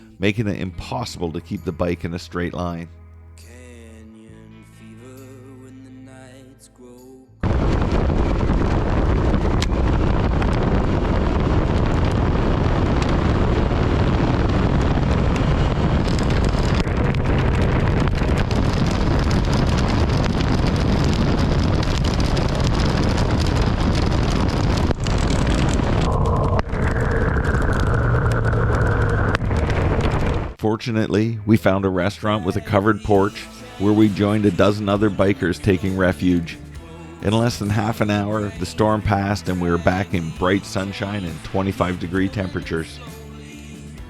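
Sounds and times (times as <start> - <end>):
hail and rain pelting: 7.6 - 26.6
wind roar and road noise: 7.8 - 30.6.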